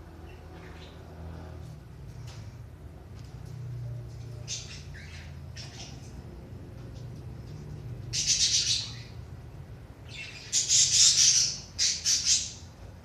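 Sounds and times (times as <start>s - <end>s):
budgerigars chattering and squawking: 4.4s - 6.2s, 8.1s - 9.2s, 10.1s - 12.7s.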